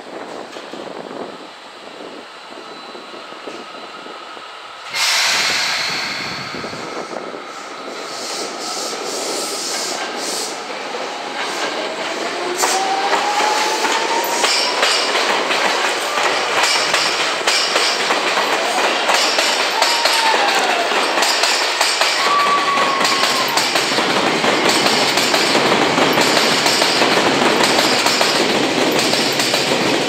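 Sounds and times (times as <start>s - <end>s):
loud hiss: 4.8s - 10.9s
wheels clicking over rail joints: 11.4s - 30.0s.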